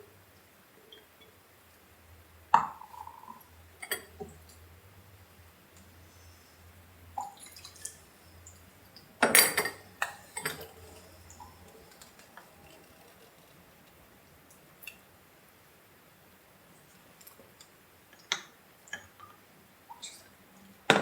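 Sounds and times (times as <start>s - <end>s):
water pouring: 7.1s - 15.0s.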